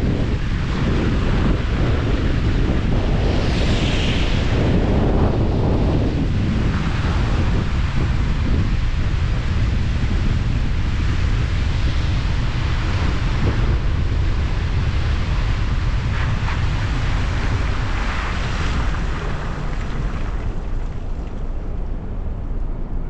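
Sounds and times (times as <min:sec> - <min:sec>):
loud rushing noise: 0:00.0 - 0:23.0
wind rumble on microphone: 0:00.0 - 0:23.0.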